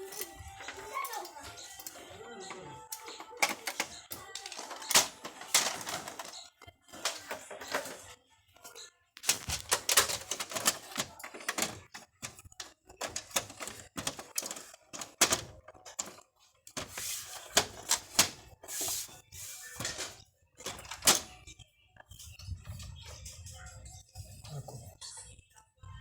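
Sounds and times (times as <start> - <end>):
clicks and clatters of hard parts: 0.0 - 8.2, 9.2 - 19.0, 19.8 - 21.4.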